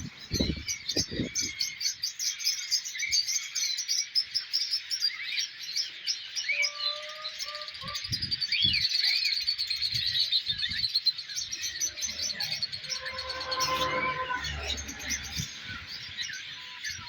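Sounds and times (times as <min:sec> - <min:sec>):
birds chirping: 0:09.5 - 0:17.0
rising bird whistles: 0:11.4 - 0:16.3.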